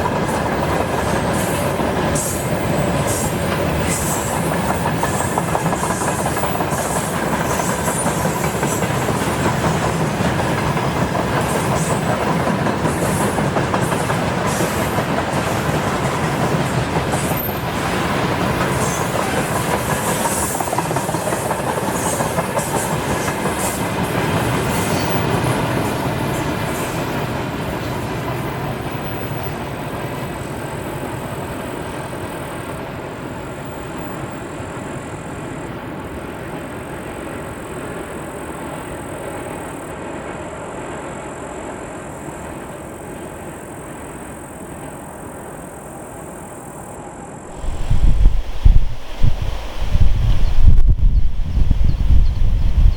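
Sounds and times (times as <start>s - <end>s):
freight train wheels clacking: 0.0s - 35.3s.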